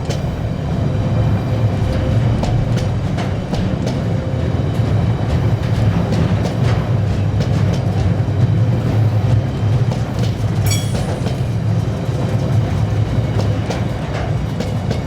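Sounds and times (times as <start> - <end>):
train rumbling past: 0.0 - 15.0
wheels clicking over rails: 8.8 - 15.0.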